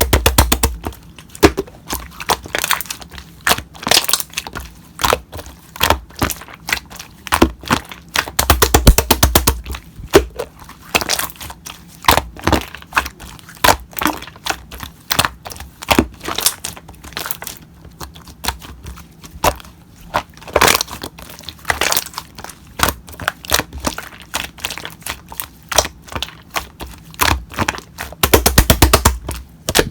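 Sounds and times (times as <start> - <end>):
slime clicking and popping: 0.0 - 2.9, 7.3 - 10.4, 22.8 - 29.9.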